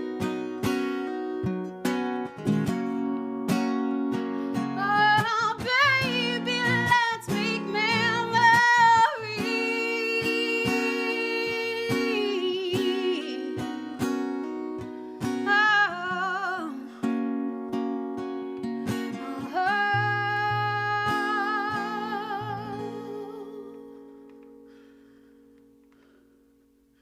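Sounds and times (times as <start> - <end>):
acoustic guitar strumming: 0.0 - 26.8
woman singing wordless notes: 4.7 - 14.2, 15.3 - 17.4, 19.1 - 24.1.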